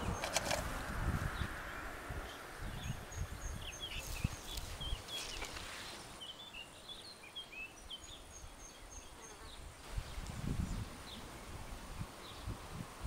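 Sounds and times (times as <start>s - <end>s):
small birds chirping: 0.0s - 12.8s.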